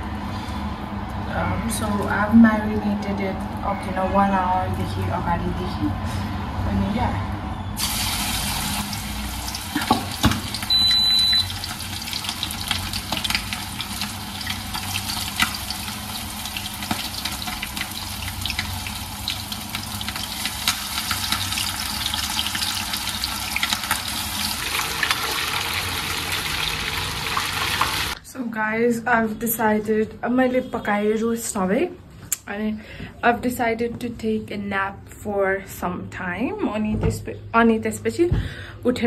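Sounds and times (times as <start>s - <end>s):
chicken sizzling in hot oil: 7.8s - 28.2s
oil crackling and popping: 7.8s - 28.2s
short high beep: 10.7s - 11.5s.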